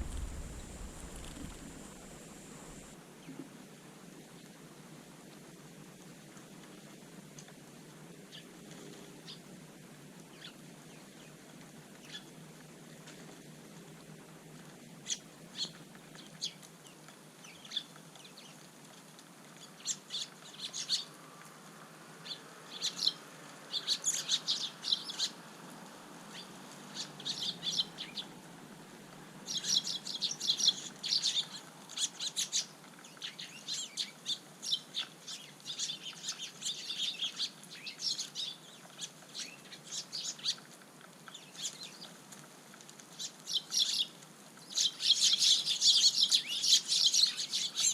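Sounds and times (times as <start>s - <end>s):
sparrows chirping: 0.0s - 2.9s, 22.2s - 25.4s, 26.3s - 28.3s, 29.5s - 40.6s, 43.2s - 47.9s.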